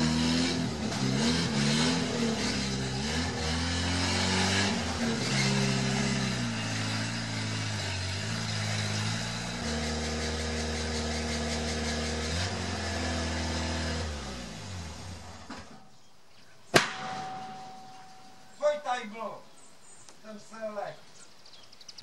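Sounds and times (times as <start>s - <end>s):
exhaust backfire bang: 16.7s - 18.6s.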